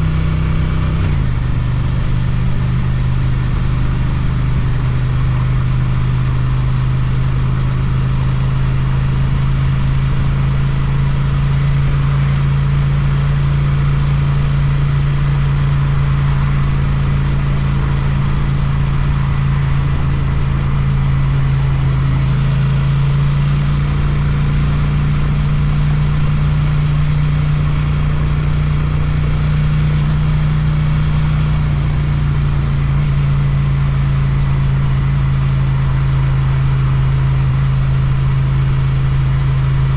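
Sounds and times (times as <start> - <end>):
motorcycle engine at steady revs: 0.0 - 39.9.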